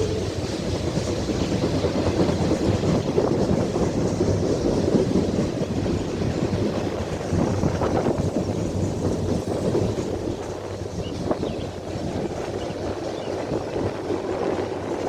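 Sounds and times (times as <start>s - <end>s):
freight train rumbling past: 0.0s - 15.0s
steel wheels clattering on rails: 0.0s - 15.0s.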